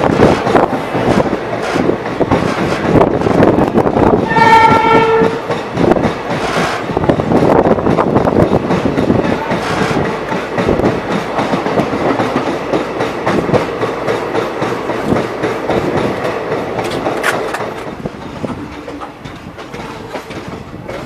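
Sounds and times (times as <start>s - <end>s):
train wheels clattering over rails: 0.0s - 21.0s
locomotive horn: 4.2s - 5.5s.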